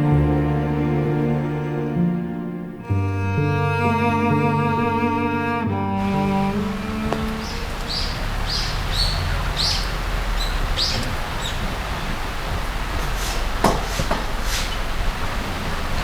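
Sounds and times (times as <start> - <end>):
steady outdoor hiss: 2.7 - 16.0
small bird chirping: 6.6 - 12.2.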